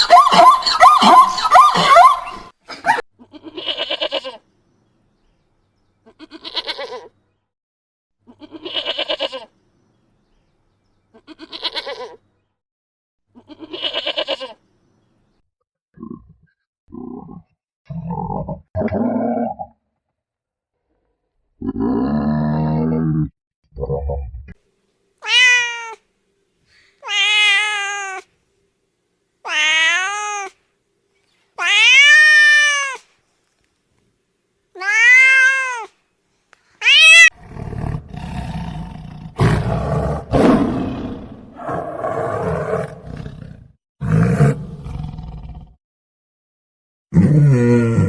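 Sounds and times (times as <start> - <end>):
cat meowing: 25.2 - 26.0, 27.0 - 28.3, 29.5 - 30.6, 31.6 - 33.0, 34.8 - 35.9, 36.8 - 37.4.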